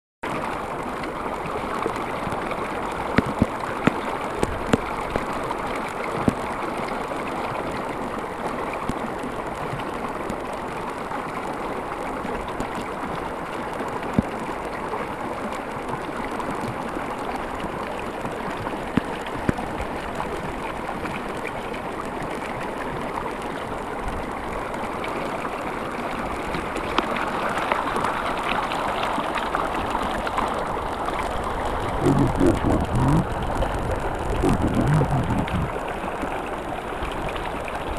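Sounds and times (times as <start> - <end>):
rushing rainwater: 0.2 - 37.9
heavy rain: 29.5 - 36.4.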